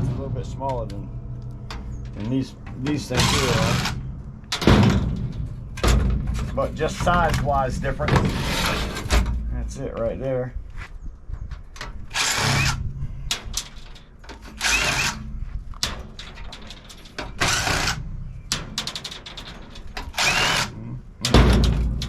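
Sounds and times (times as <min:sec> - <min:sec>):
power drill bursts: 0:12.1 - 0:12.8, 0:14.6 - 0:15.2, 0:17.4 - 0:18.0, 0:20.1 - 0:20.7.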